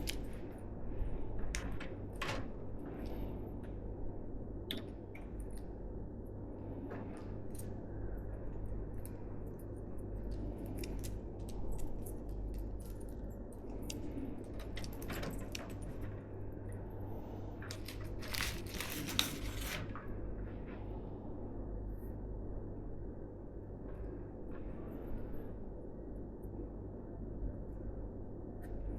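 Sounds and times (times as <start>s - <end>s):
steady low hum: 0.0s - 28.9s
scraping and rustling: 17.7s - 20.0s.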